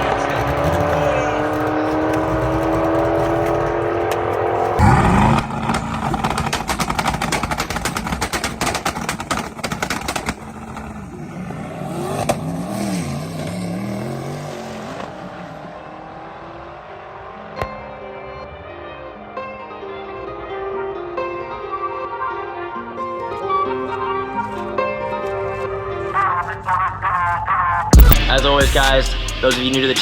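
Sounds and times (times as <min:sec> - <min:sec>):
car engine revving: 0:00.0 - 0:17.6, 0:28.0 - 0:30.0
exhaust crackling: 0:00.0 - 0:17.6, 0:27.4 - 0:30.0.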